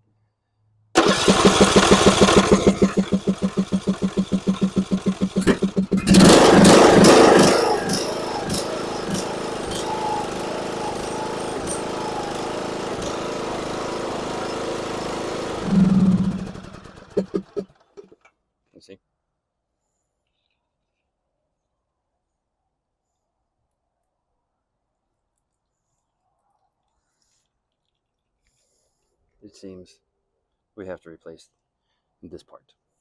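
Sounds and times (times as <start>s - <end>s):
mower engine running: 1.0s - 17.7s
mower engine cranking on starter: 1.0s - 18.0s.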